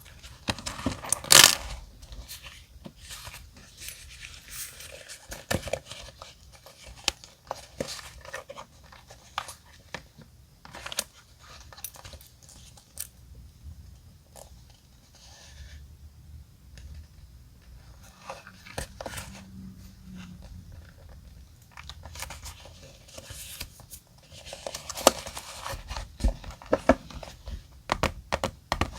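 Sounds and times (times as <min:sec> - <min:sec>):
paper rustling and crinkling: 0:00.0 - 0:12.8, 0:20.1 - 0:27.8.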